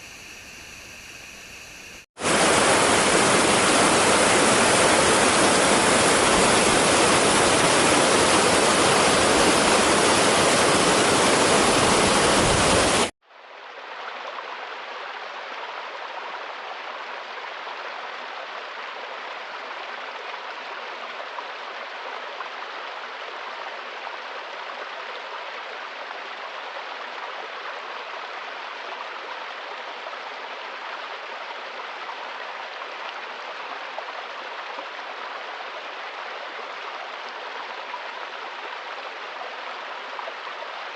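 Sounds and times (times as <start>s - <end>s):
stream running: 2.1s - 40.9s
loud rush of water: 2.2s - 13.2s.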